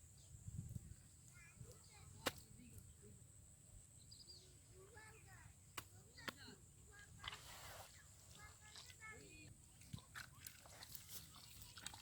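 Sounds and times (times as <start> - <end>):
faint chirps: 0.1 - 6.2.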